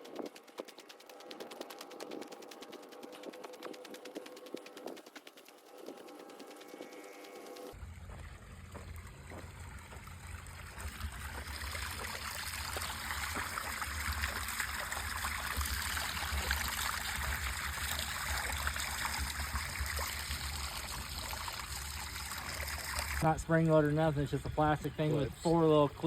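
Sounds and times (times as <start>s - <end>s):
water pouring from a pipe: 0.0s - 24.8s
water splashing into a pond: 7.7s - 23.5s.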